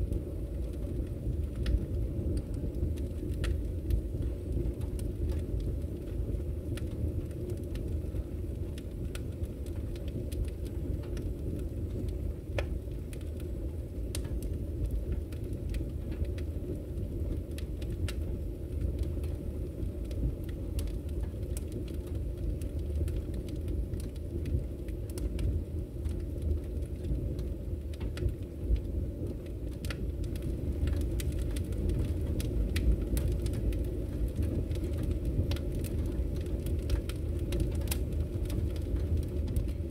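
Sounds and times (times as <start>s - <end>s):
low roar of fire: 0.0s - 39.9s
wood fire crackling and popping: 0.0s - 39.9s.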